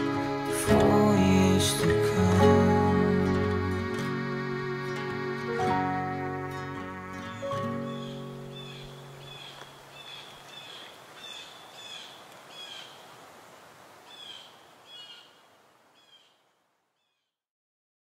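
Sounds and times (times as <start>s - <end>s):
bird chirping: 3.1s - 13.0s, 14.1s - 15.4s, 16.0s - 16.4s.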